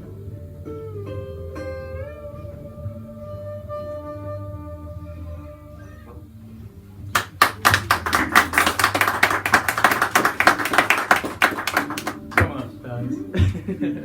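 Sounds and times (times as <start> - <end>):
audience applauding: 7.2 - 12.8.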